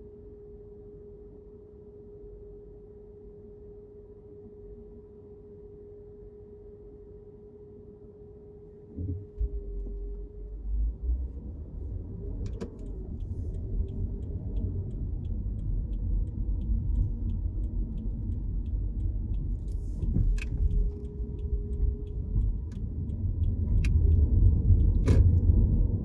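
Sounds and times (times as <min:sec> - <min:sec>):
car cabin road rumble: 0:08.8 - 0:26.0
light ticking: 0:12.0 - 0:25.8.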